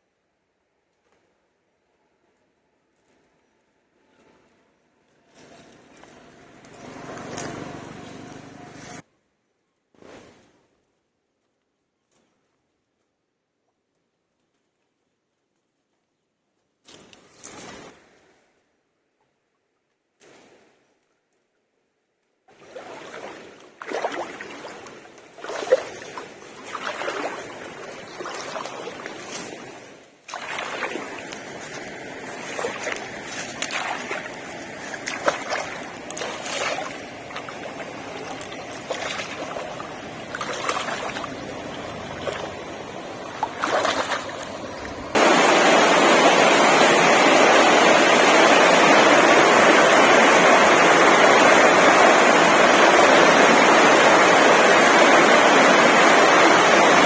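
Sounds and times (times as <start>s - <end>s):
rush of flowing water: 5.4s - 9.0s, 22.5s - 57.0s.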